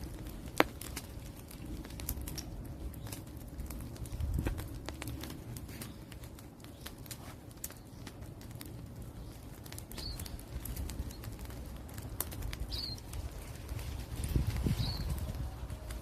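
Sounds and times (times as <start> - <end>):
wood fire crackling and popping: 0.0 - 16.0
bird chirping: 9.0 - 10.4, 12.7 - 13.1, 14.7 - 15.3.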